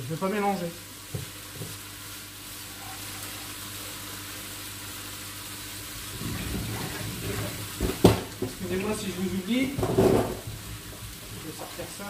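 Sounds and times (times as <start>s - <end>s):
onions and potatoes sizzling: 0.0s - 12.0s.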